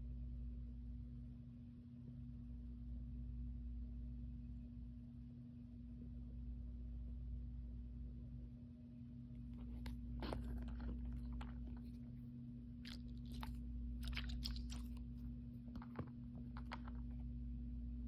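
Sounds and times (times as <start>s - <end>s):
plastic packaging crinkling: 9.6s - 12.2s, 12.9s - 17.2s.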